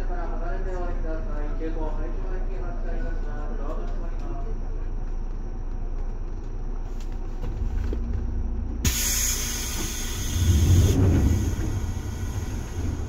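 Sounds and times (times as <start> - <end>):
electric train rumble: 0.0 - 13.0
loud rushing hiss: 8.8 - 13.0.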